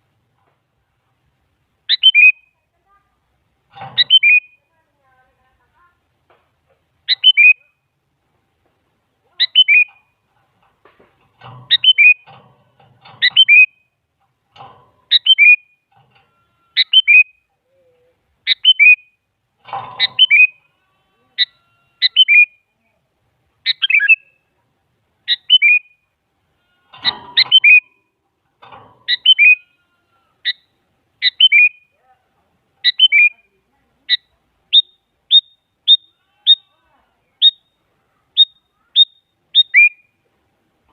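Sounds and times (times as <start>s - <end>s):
bird singing whistled notes: 1.9s - 2.6s, 4.0s - 4.6s, 7.1s - 7.7s, 9.4s - 10.1s, 11.7s - 12.3s, 13.2s - 13.9s, 15.1s - 15.8s, 16.8s - 17.4s, 18.5s - 19.2s, 20.0s - 20.6s, 21.4s - 22.6s, 23.7s - 24.4s, 25.3s - 26.0s, 27.4s - 28.0s, 29.1s - 29.6s, 30.5s - 31.9s, 32.8s - 33.4s, 34.1s - 36.7s, 37.4s - 40.2s.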